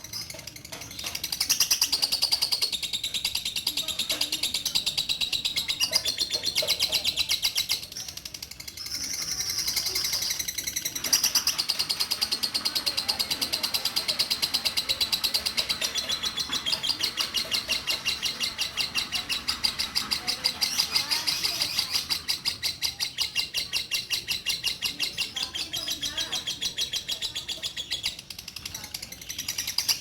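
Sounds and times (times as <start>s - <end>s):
lovebird chattering song: 0.0s - 30.0s.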